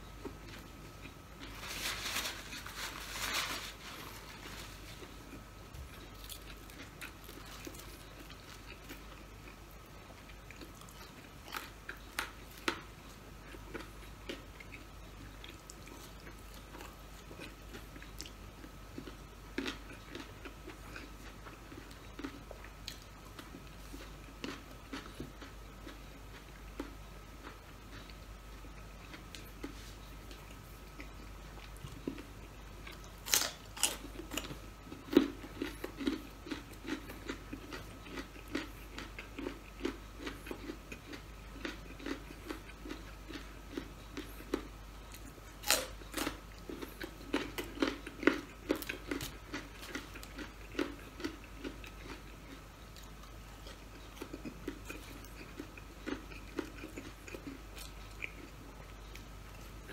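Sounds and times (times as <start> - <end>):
person chewing food: 0.1 - 59.9
crunchy bites of food: 30.3 - 59.9.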